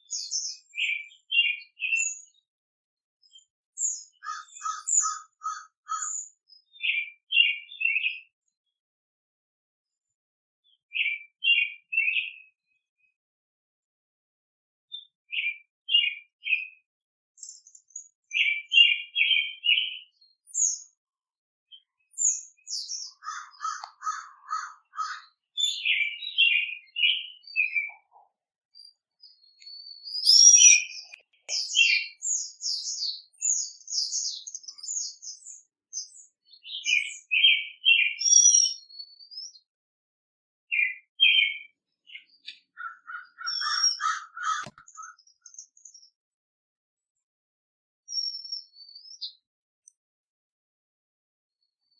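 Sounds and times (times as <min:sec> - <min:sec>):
birds singing high thin notes: 0:28.9 - 0:39.7.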